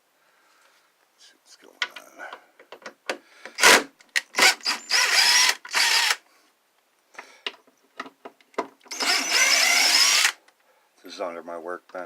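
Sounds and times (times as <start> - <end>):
power drill running: 4.4 - 6.2, 8.9 - 10.4
clicks and handling noises: 6.8 - 8.9.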